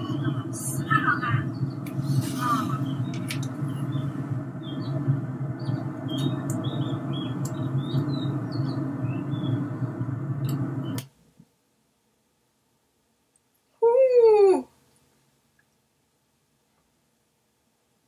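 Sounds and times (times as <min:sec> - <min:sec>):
small birds chirping: 0:00.0 - 0:11.1
steady low rumble: 0:00.0 - 0:11.1.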